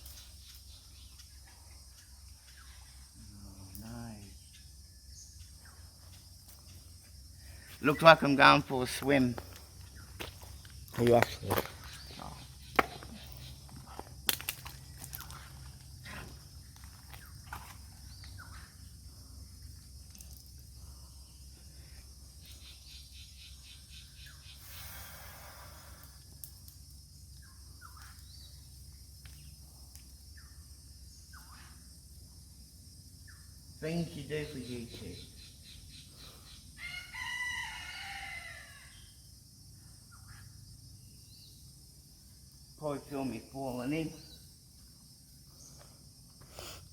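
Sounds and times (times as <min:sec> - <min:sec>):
rustling and snapping in scrub: 0:14.2 - 0:15.4.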